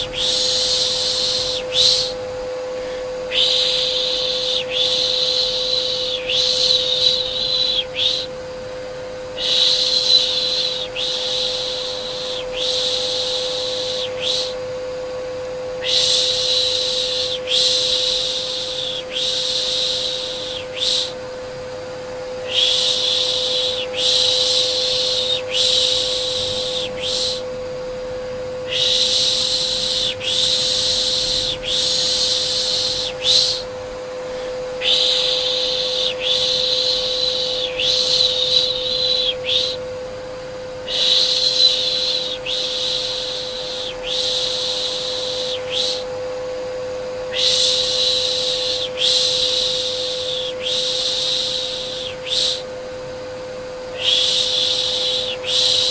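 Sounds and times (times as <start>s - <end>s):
person shushing a baby: 0.0s - 2.2s, 2.8s - 8.3s, 15.8s - 21.2s, 22.5s - 27.4s, 28.7s - 33.7s, 34.4s - 39.8s, 40.9s - 46.0s, 47.3s - 52.7s
vacuum cleaner hum: 0.0s - 55.9s.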